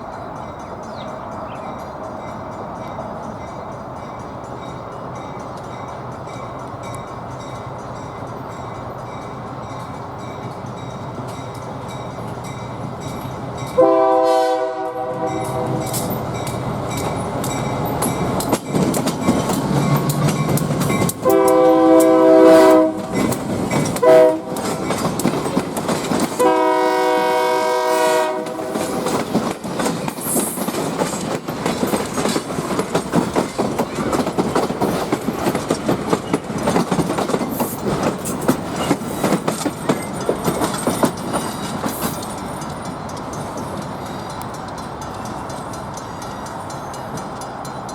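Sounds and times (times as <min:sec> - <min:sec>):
locomotive engine: 0:00.0 - 0:47.9
locomotive air horn blasts: 0:13.8 - 0:16.0, 0:21.2 - 0:23.2, 0:24.0 - 0:24.7, 0:26.4 - 0:28.8
wheels clicking over rail joints: 0:15.0 - 0:47.9.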